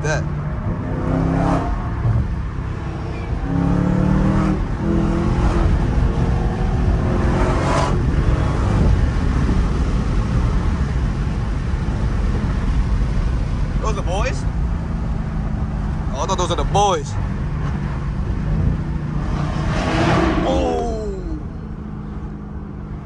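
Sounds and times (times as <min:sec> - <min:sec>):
car engine accelerating: 0:00.0 - 0:23.0
tyre and wind noise: 0:00.4 - 0:13.8.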